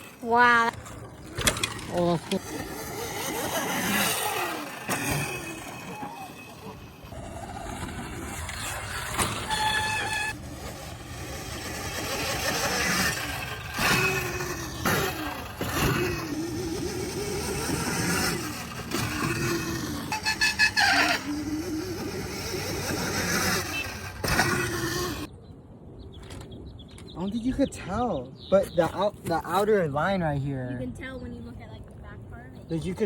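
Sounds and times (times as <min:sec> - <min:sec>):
electric motor whine: 0:01.9 - 0:25.3.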